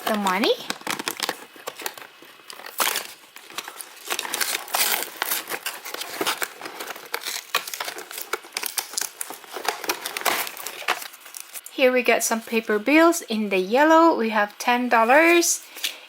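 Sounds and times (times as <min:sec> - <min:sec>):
plastic packaging crinkling: 0:00.0 - 0:11.7.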